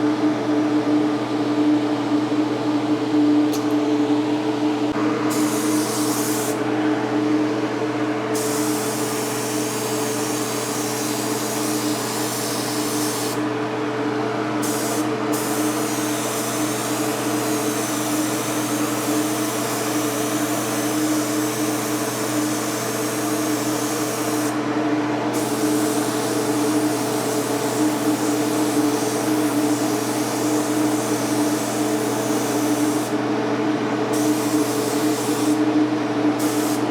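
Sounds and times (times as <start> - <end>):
paint spray gun hissing: 5.3 - 6.6, 8.4 - 13.4, 14.6 - 24.6, 25.4 - 33.2, 34.1 - 35.7, 36.4 - 36.9.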